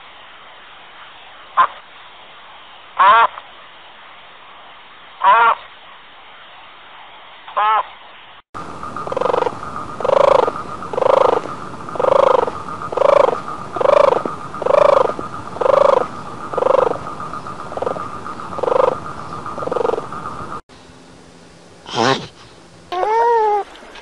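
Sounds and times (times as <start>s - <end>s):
frog croaking: 1.6s - 1.8s, 3.0s - 3.4s, 5.2s - 5.6s, 7.5s - 7.9s, 8.6s - 20.6s, 21.9s - 24.0s.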